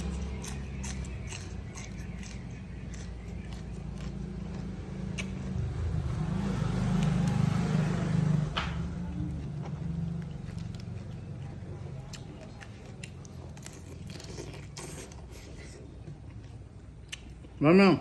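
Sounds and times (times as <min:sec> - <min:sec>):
motor vehicle rumble: 0:00.0 - 0:14.2.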